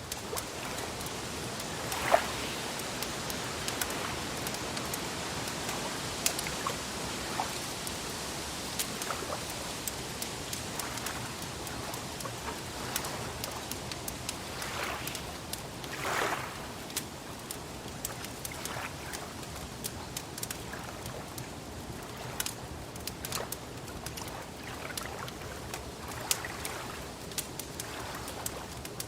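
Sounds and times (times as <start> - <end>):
wood fire crackling: 0.0 - 15.9, 21.4 - 24.2, 27.2 - 29.0.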